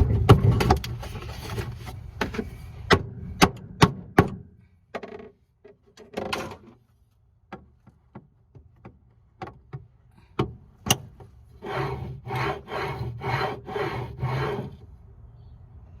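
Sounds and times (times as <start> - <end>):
drawer rails scraping: 11.6 - 14.8.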